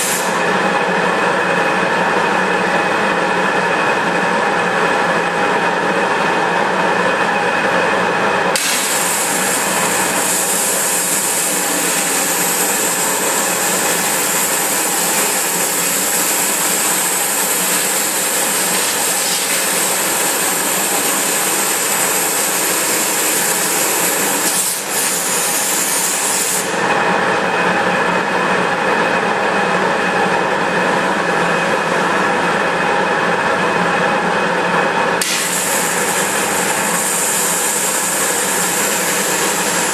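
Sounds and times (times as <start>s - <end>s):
loud machine noise with tones: 0.0s - 39.9s
high hiss of water jet: 8.6s - 26.7s.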